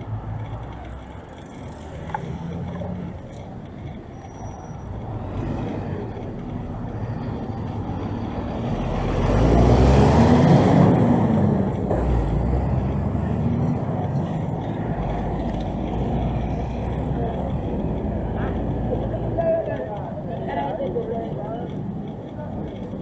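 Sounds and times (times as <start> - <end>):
street traffic: 0.0 - 23.0
vehicle engine driving past: 8.2 - 14.0.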